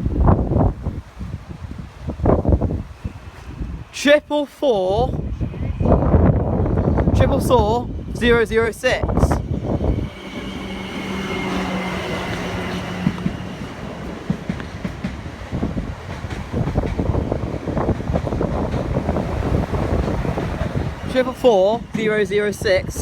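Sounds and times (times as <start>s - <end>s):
electric train humming: 0.0s - 23.0s
train wheels clattering on rails: 9.8s - 23.0s.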